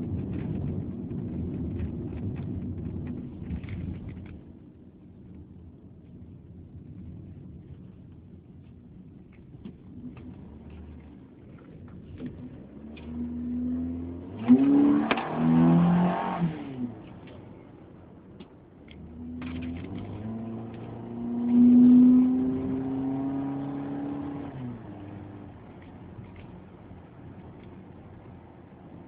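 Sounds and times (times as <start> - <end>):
car engine revving: 9.9 - 17.4, 18.9 - 26.7.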